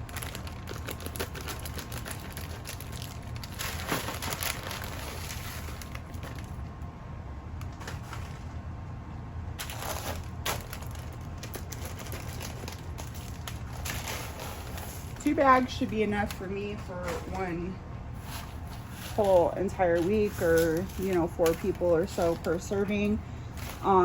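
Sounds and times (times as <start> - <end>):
plastic bags rustling: 0.0 - 6.8, 7.6 - 8.7, 9.6 - 24.0
steady low hum: 0.0 - 24.0.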